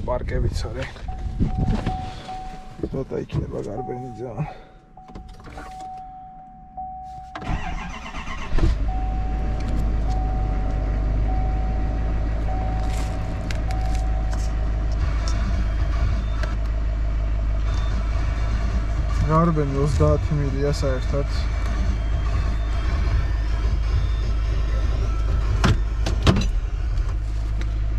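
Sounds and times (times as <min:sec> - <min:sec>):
truck engine cranking and idling: 0:00.0 - 0:27.9
dashboard chime pulsing: 0:01.1 - 0:03.0, 0:03.6 - 0:07.5, 0:08.8 - 0:14.6.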